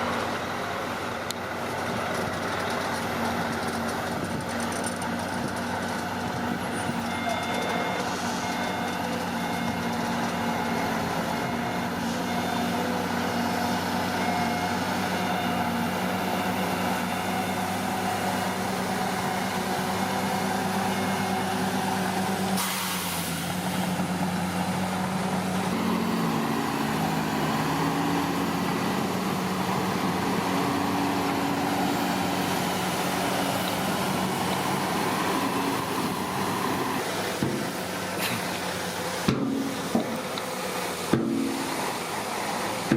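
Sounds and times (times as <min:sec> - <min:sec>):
bulldozer diesel engine running: 0:00.0 - 0:42.9
short hiss: 0:22.6 - 0:23.4.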